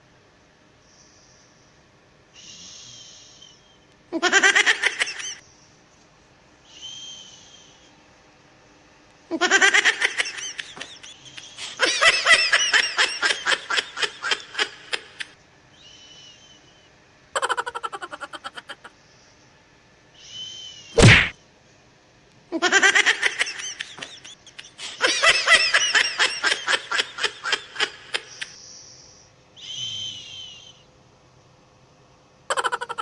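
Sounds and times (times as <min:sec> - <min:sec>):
soft hissing breaths: 0:00.0 - 0:04.1, 0:05.4 - 0:09.0, 0:11.1 - 0:12.0, 0:13.6 - 0:17.2, 0:18.0 - 0:21.0, 0:24.6 - 0:25.2, 0:26.8 - 0:32.1.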